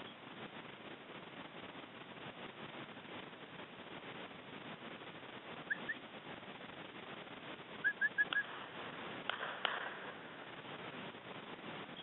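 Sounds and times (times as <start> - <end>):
steady outdoor hiss: 0.0 - 12.0
bird chirping: 5.7 - 6.0, 7.8 - 8.5.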